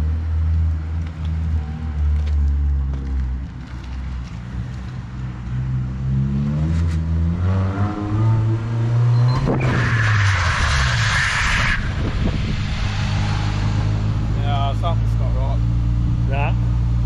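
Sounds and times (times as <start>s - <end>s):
car engine revving: 5.6s - 17.0s.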